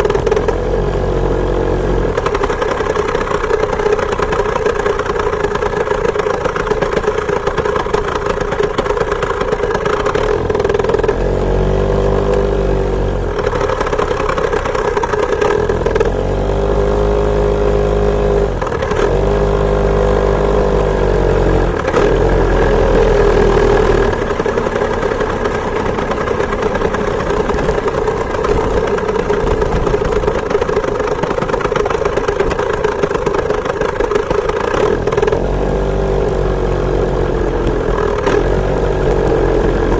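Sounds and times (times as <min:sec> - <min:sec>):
two-stroke moped engine revving: 0:00.0 - 0:39.9.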